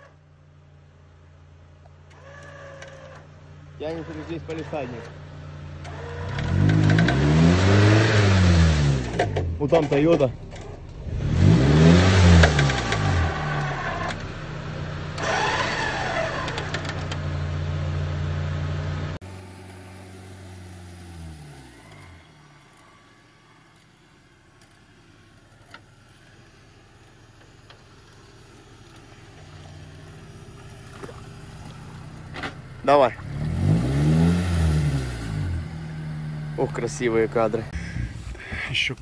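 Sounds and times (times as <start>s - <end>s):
engine revving hard: 5.8s - 9.4s, 11.0s - 14.2s, 15.2s - 16.8s, 32.9s - 38.0s.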